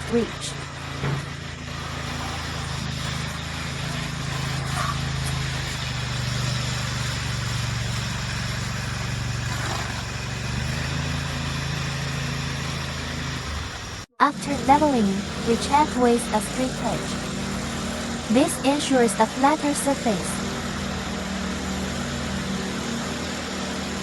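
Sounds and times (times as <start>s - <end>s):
trowel scraping concrete: 0.0s - 13.0s
small petrol engine running: 0.0s - 24.0s.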